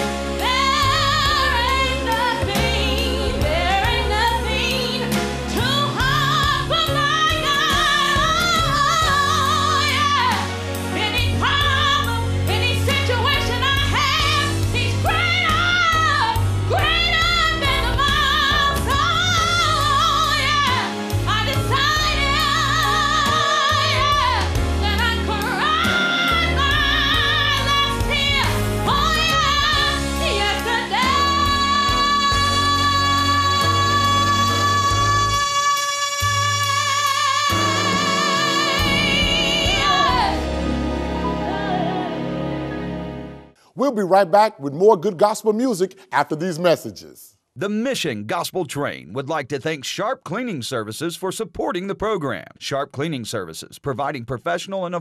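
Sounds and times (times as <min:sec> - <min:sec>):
singer with heavy vibrato: 0:31.0 - 0:40.6.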